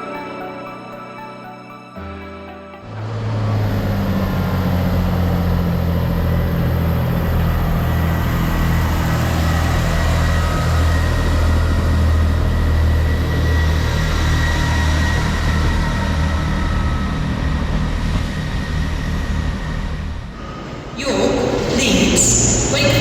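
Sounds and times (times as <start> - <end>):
diesel train engine idling: 2.8 - 14.5.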